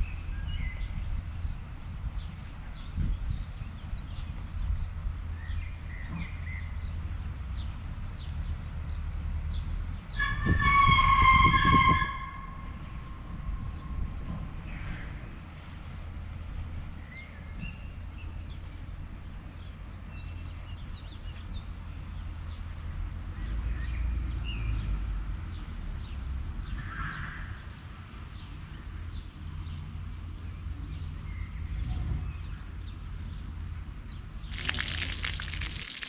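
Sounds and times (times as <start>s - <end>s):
small birds chirping: 34.5s - 36.0s.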